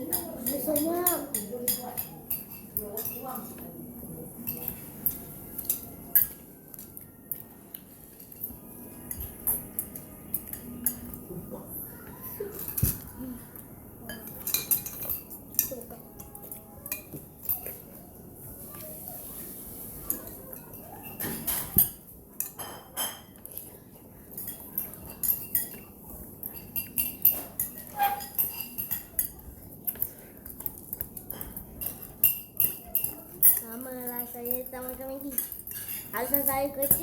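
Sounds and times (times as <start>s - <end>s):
cutlery clinking against a bowl: 0.0s - 11.6s, 12.3s - 18.1s, 18.7s - 37.0s.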